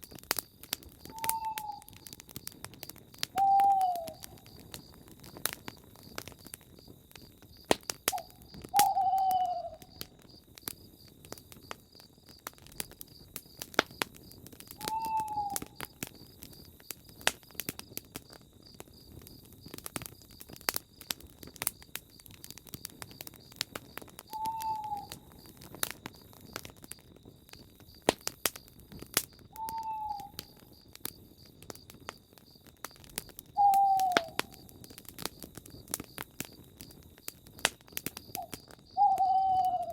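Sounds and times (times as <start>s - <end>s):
campfire crackling and popping: 0.0s - 39.9s
faint high insect trill: 0.0s - 39.9s
bird hooting: 1.1s - 2.0s, 3.4s - 4.2s, 8.2s - 9.8s, 14.8s - 15.6s, 24.3s - 25.2s, 29.6s - 30.4s, 33.6s - 34.4s, 39.0s - 39.9s.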